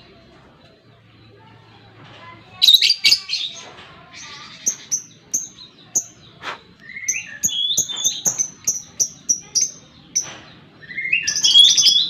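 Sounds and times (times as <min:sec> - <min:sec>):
lovebird high chirps: 0:04.2 - 0:12.0.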